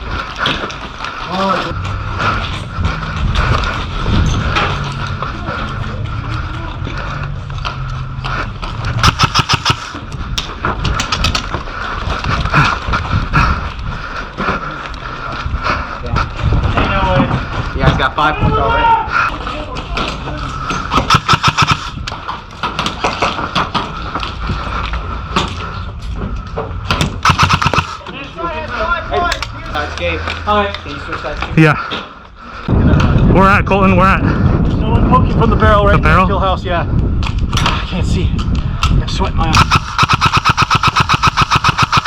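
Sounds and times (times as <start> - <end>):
airsoft rifle firing: 9.0 - 10.0, 21.0 - 22.0, 27.2 - 28.0, 39.6 - 42.0.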